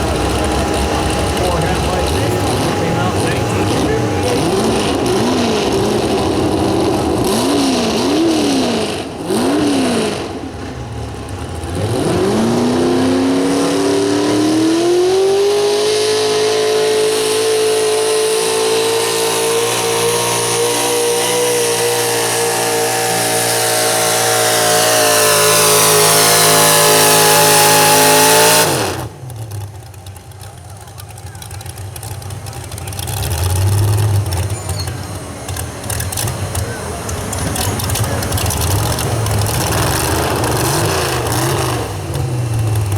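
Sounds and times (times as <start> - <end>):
high whine: 0.0 - 28.2
truck engine revving: 0.0 - 42.9.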